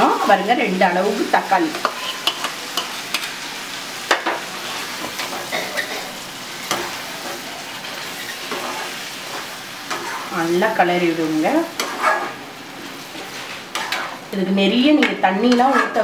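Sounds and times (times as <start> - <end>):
chicken sizzling in hot oil: 0.0 - 16.0
spatula stirring: 6.7 - 10.5, 11.1 - 14.2, 15.0 - 16.0.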